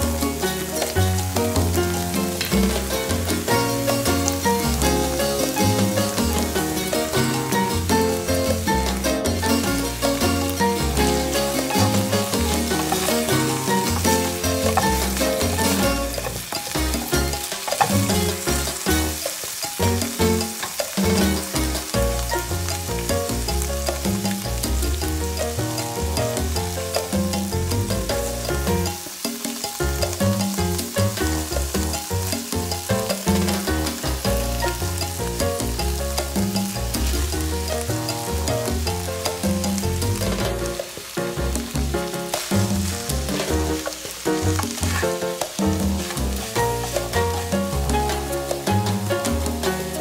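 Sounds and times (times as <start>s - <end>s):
background music: 0.0s - 50.0s
food sizzling in a frying pan: 0.0s - 50.0s.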